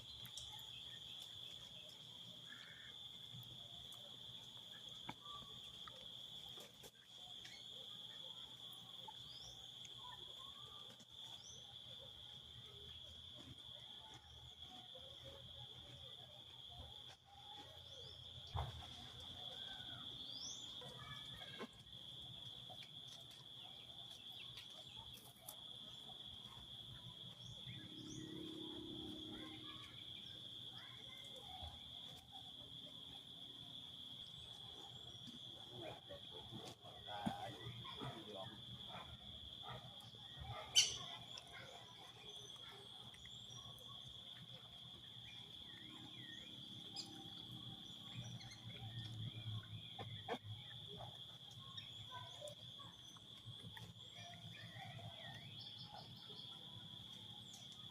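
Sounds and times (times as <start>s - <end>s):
insect droning: 0.0s - 57.9s
bird chirps and calls: 40.7s - 41.2s.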